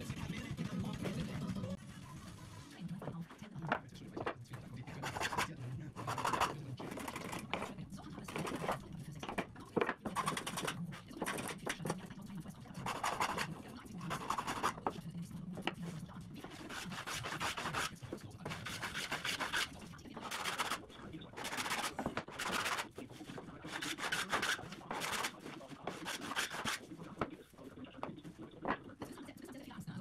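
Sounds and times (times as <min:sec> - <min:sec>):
wood being sanded by hand: 0:04.9 - 0:12.0, 0:12.8 - 0:15.0, 0:16.4 - 0:27.3.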